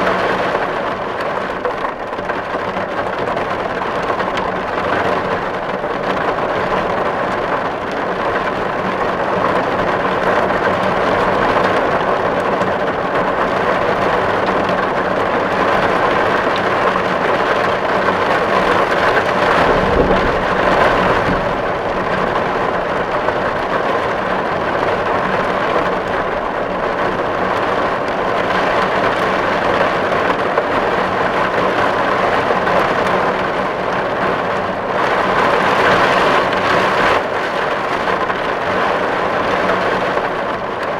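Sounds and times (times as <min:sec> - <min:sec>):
heavy rain on a tin roof: 0:00.0 - 0:40.9
low rumble: 0:17.9 - 0:27.5.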